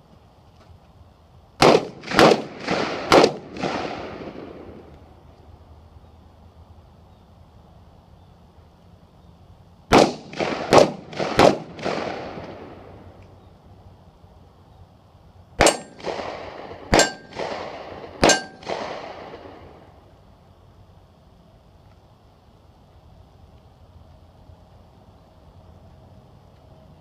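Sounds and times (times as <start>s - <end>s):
gunshots echoing: 1.6s - 4.7s, 9.9s - 12.8s, 15.6s - 19.7s
bullets ringing on steel targets: 15.6s - 16.1s, 16.9s - 17.5s, 18.2s - 18.8s.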